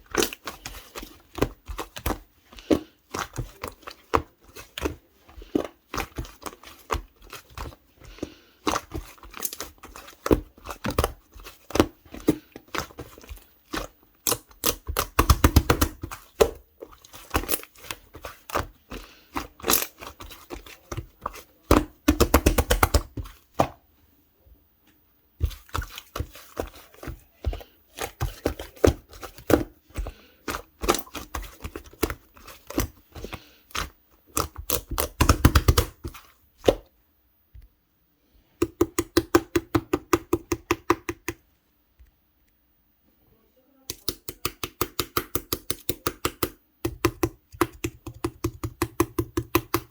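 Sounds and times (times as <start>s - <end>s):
rapid slime clicking: 0.0s - 23.7s, 25.4s - 36.8s, 38.6s - 41.4s, 43.9s - 49.9s
hands squishing sticky slime: 0.0s - 23.9s, 25.4s - 36.9s, 38.6s - 41.4s, 43.9s - 49.9s.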